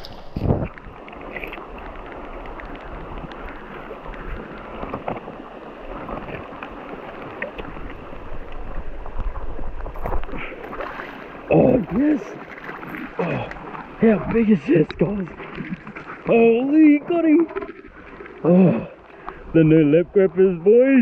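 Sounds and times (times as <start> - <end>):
wind on microphone: 0.0 - 6.5
water rushing: 0.0 - 21.0.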